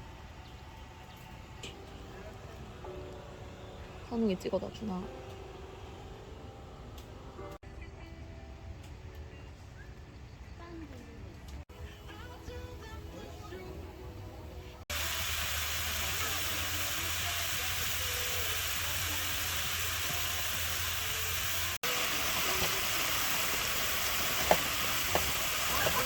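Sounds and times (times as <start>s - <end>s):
steady hiss: 14.9s - 26.0s.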